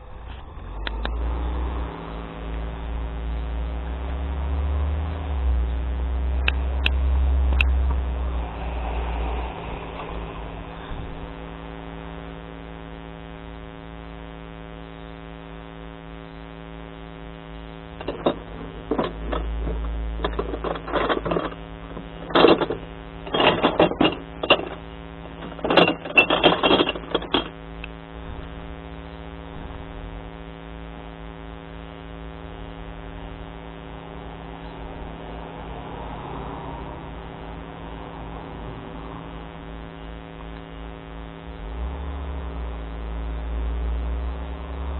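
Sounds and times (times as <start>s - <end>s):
truck engine humming: 17.8s - 28.8s
clattering crashes: 18.0s - 27.6s.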